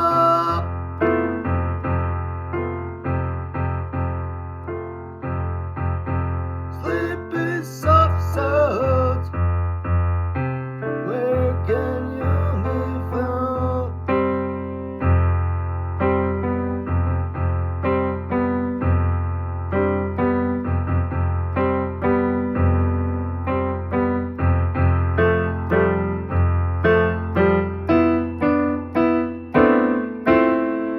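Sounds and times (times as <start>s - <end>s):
piano chords: 0.0s - 30.9s.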